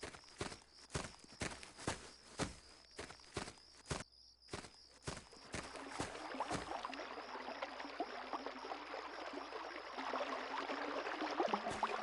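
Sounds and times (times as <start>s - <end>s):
footsteps: 0.0s - 6.8s
small waves lapping: 5.1s - 12.0s.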